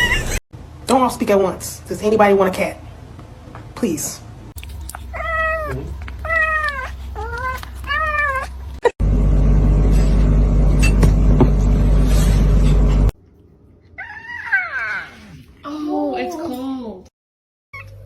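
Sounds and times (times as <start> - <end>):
cat meowing: 5.1 - 8.5
loud steady noise with low hum: 9.0 - 13.1.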